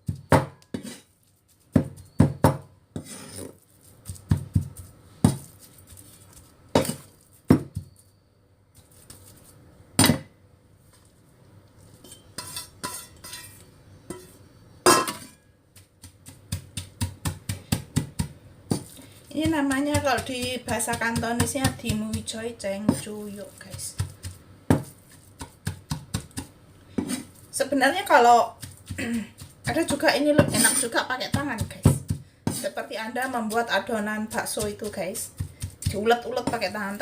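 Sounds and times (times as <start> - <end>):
cleaver chopping on cutting board: 23.7 - 27.2.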